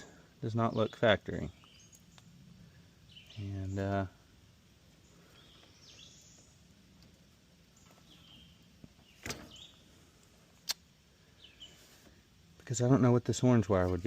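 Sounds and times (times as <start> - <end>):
faint bird chirps: 0.0 - 12.3
sharp click: 10.6 - 10.8.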